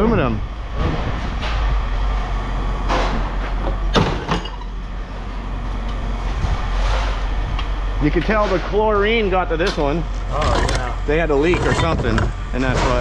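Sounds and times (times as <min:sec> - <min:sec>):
steady low rumble: 0:00.0 - 0:13.0
scrap metal scraping and clunking: 0:00.8 - 0:13.0.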